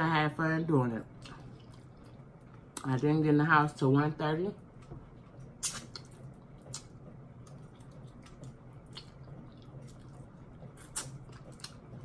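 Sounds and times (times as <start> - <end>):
wet mouth smacking: 5.6 - 6.9, 10.8 - 11.8.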